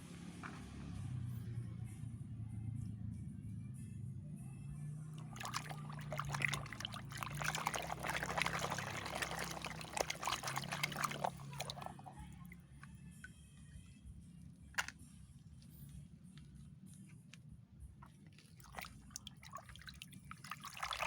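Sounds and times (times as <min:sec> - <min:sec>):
quiet background music: 0:00.0 - 0:21.0
water pouring and splashing: 0:05.2 - 0:12.4, 0:18.4 - 0:21.0.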